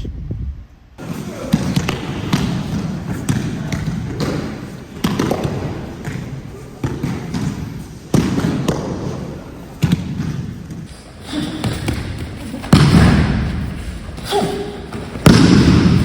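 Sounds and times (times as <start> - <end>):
bodies thumping onto mats: 10.9 - 16.0.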